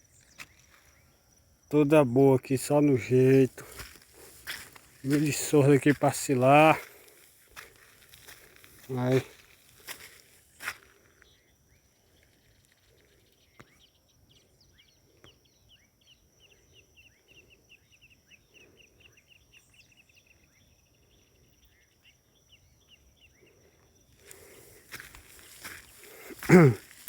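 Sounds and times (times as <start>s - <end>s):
faint bird chirping: 7.1s - 27.0s.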